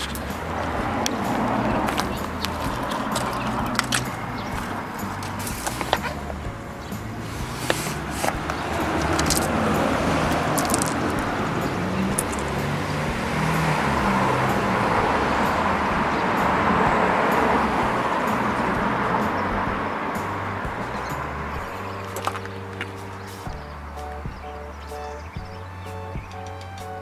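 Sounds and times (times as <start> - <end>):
vehicle road noise: 0.0 - 27.0.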